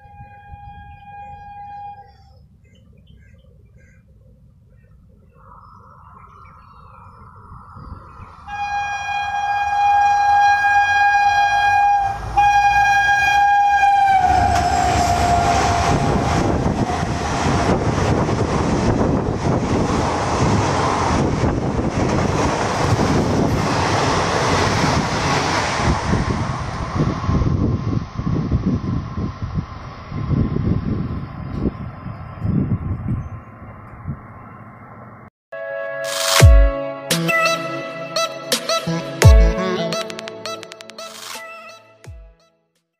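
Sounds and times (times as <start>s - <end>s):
locomotive horn blast: 0.0s - 2.2s, 8.5s - 16.6s, 35.5s - 40.3s.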